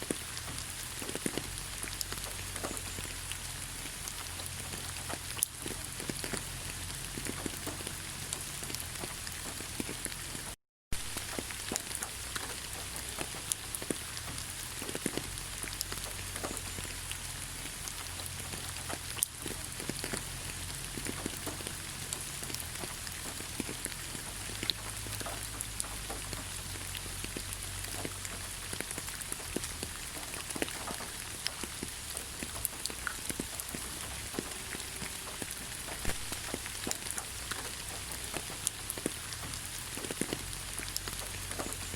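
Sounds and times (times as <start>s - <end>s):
rain hissing: 0.0s - 41.9s
raindrops ticking: 0.0s - 41.9s.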